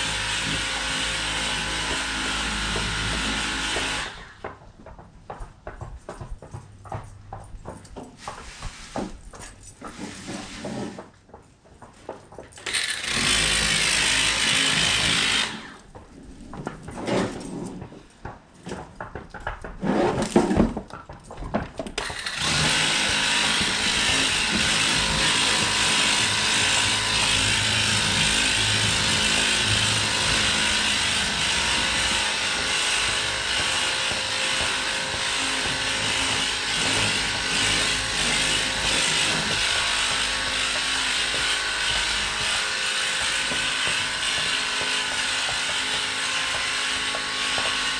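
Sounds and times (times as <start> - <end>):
pressure sprayer pump humming: 22.1 - 43.3.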